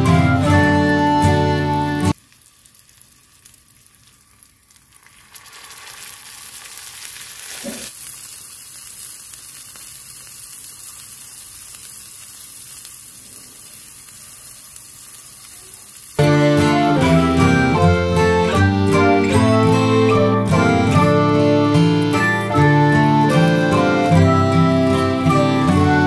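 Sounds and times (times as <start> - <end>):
curry sizzling in a pan: 1.6 - 24.1.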